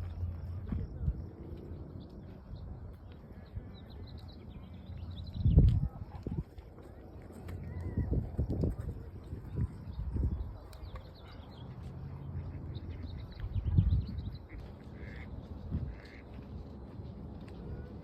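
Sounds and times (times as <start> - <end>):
wind buffeting microphone: 0.0 - 11.6, 12.6 - 18.0
small birds chirping: 0.1 - 16.8
waterfowl calling: 14.2 - 16.4.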